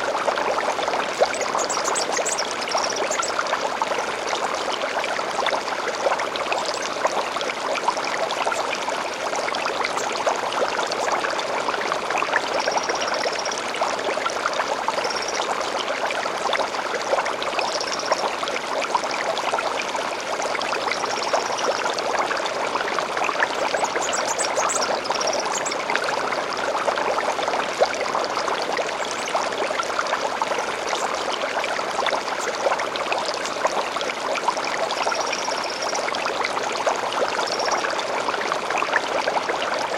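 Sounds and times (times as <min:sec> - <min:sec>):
stream flowing over stones: 0:00.0 - 0:39.9.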